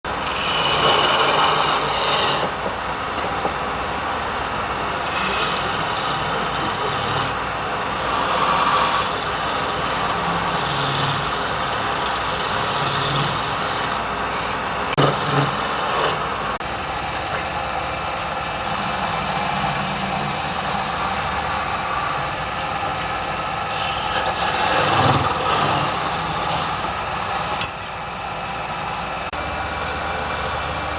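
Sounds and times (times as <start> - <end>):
rough scraping of wood: 0.2 - 2.6, 5.0 - 7.4, 8.1 - 16.2, 18.6 - 22.0, 23.7 - 26.7.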